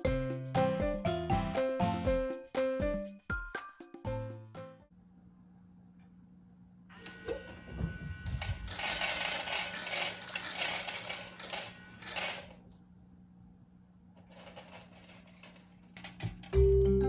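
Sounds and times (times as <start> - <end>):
kibble rattling into a bowl: 14.2 - 16.6.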